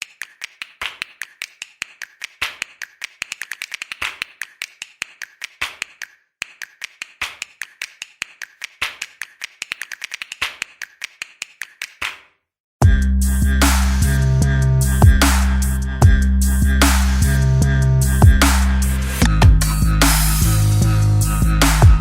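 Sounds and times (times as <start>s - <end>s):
rapid irregular clicking taps: 0.0s - 12.2s.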